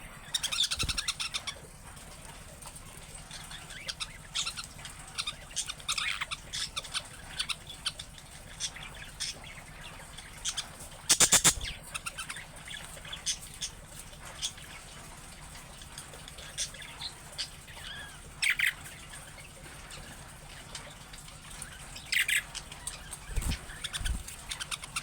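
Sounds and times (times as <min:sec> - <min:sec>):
budgerigars chirping: 0:00.0 - 0:01.6, 0:03.3 - 0:13.8, 0:20.8 - 0:25.0.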